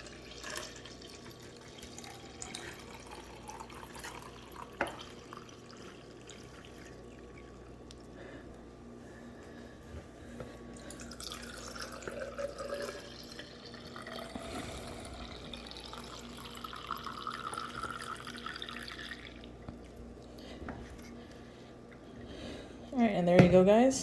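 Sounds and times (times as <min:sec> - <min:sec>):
liquid pouring into cup: 0:00.0 - 0:08.2, 0:10.8 - 0:20.4.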